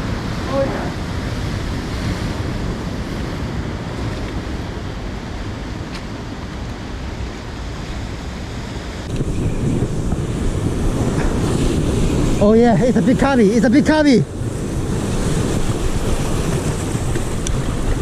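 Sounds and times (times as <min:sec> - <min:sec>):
ocean surf on shore: 0:00.0 - 0:18.0
wind on microphone: 0:00.0 - 0:18.0.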